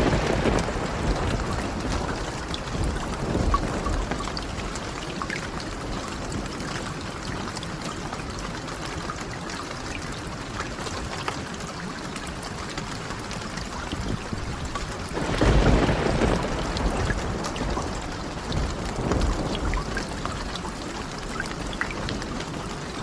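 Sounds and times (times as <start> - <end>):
low rumble of thunder: 0.0 - 7.4, 12.8 - 23.0
steady rain: 0.0 - 23.0.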